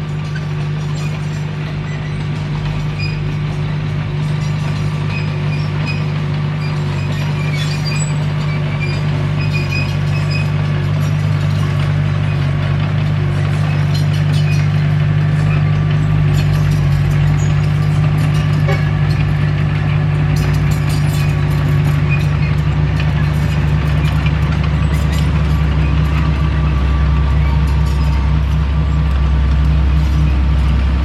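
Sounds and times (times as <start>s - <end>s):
bulldozer diesel engine running: 0.0s - 31.0s
metallic clinks from tracks: 9.6s - 31.0s.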